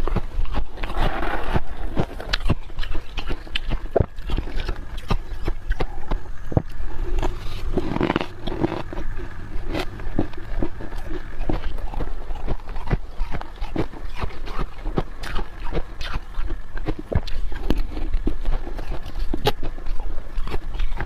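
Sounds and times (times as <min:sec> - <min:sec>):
chewing: 0:00.0 - 0:21.0
frost crunching and scraping: 0:00.0 - 0:21.0.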